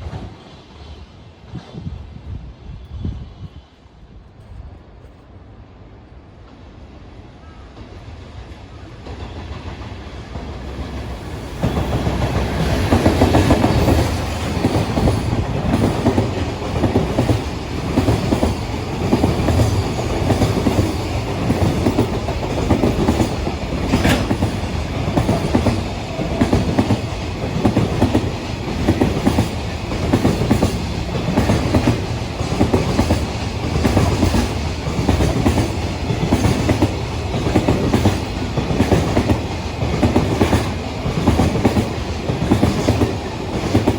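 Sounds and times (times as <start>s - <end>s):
train wheels clattering: 9.0s - 43.9s.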